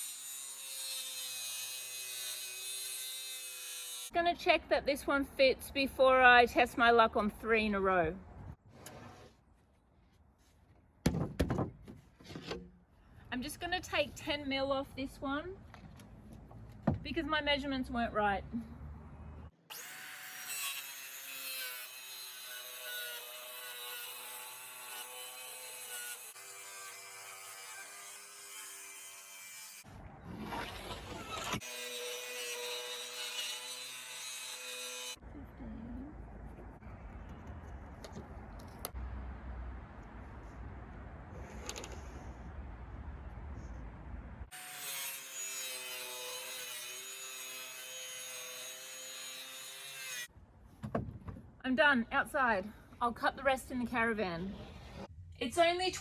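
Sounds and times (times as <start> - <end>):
electric saw cutting plywood: 19.7 - 35.2.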